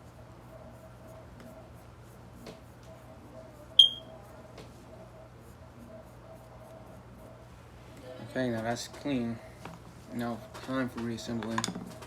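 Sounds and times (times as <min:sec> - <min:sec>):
faint room hum: 0:00.0 - 0:12.0
short high electronic beep: 0:03.8 - 0:04.1.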